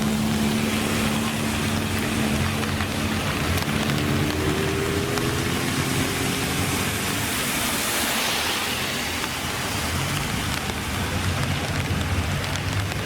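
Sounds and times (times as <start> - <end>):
car engine: 0.0 - 13.0
rushing hiss of tyres and air: 6.3 - 11.0.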